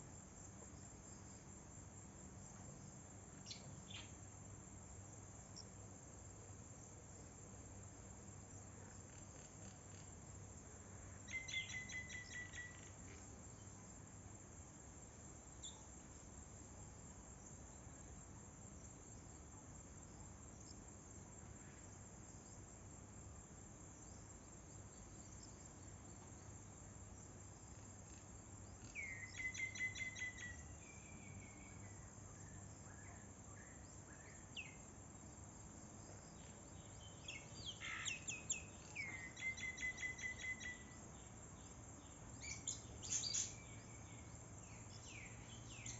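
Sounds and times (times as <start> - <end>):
faint steady hiss: 0.0 - 45.9.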